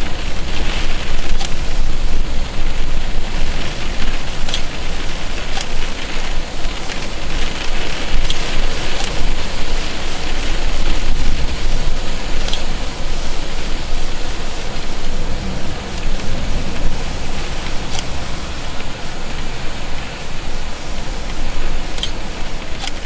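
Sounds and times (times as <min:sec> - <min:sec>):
heavy rain and wind: 0:00.0 - 0:23.0
sharp ticks: 0:12.4 - 0:12.7, 0:21.3 - 0:23.0.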